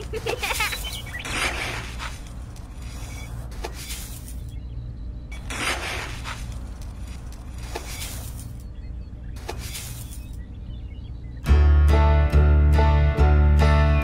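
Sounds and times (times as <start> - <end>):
low steady hum: 0.0 - 12.5.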